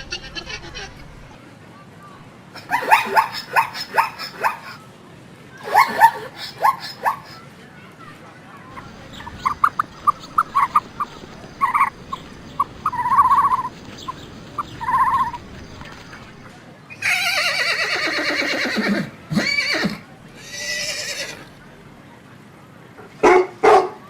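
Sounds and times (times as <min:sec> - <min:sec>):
horse whinny: 0:16.9 - 0:21.6.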